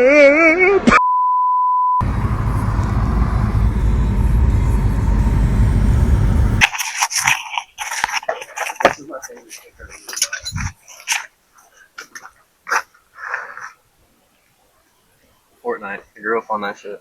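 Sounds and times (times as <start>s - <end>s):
low vehicle rumble: 2.0s - 6.6s.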